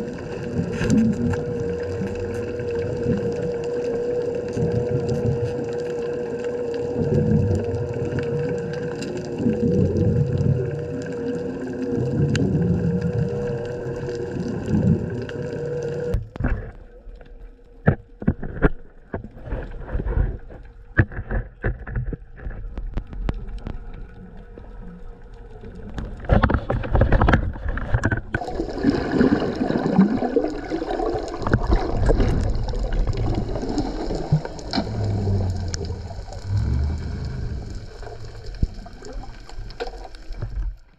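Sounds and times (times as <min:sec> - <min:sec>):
water sloshing against hull: 0:00.0 - 0:40.9
boat motor running: 0:34.6 - 0:38.2.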